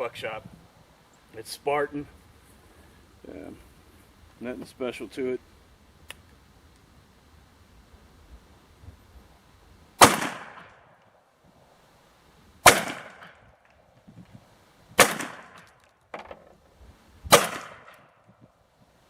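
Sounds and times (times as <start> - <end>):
shotgun blasts echoing: 10.0 - 10.8, 12.6 - 13.4, 15.0 - 15.7, 17.3 - 18.0.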